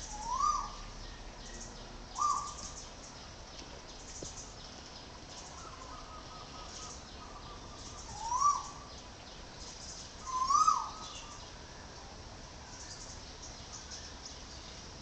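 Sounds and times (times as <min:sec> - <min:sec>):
bird calls rising and falling: 0:00.0 - 0:02.8, 0:05.5 - 0:08.9, 0:10.2 - 0:11.5.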